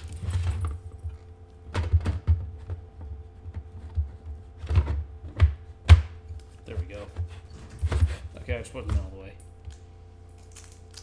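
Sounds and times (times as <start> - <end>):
faint steady hum: 0.0 - 11.0
plastic parts knocking and clicking: 0.4 - 8.2.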